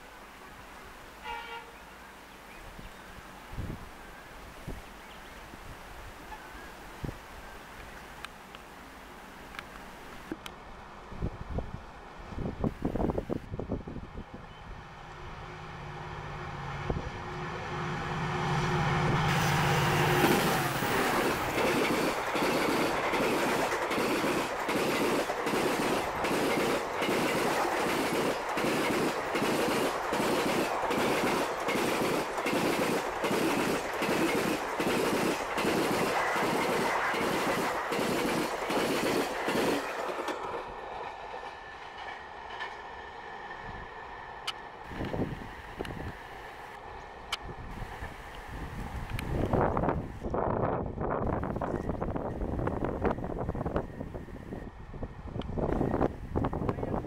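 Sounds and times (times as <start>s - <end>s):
locomotive hum: 6.2s - 57.0s
train wheels thumping over rail joints: 20.1s - 42.8s.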